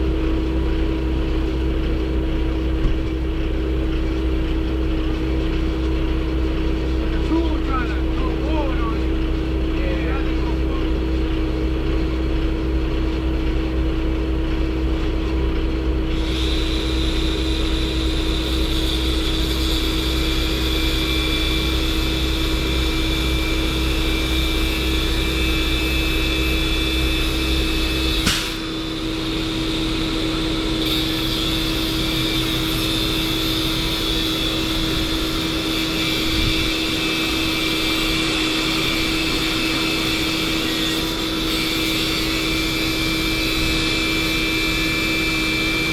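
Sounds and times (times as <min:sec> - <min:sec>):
vehicle running hum: 0:00.0 - 0:45.9
sharp click: 0:28.2 - 0:28.6.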